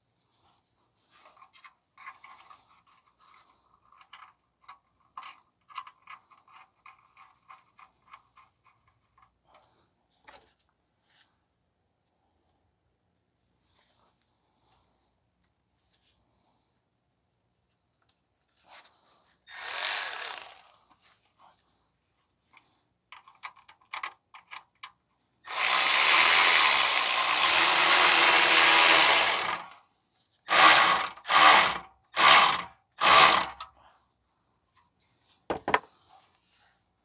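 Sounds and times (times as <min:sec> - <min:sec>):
power tool driving a screw: 0:19.5 - 0:20.7, 0:25.5 - 0:29.8, 0:30.5 - 0:33.7.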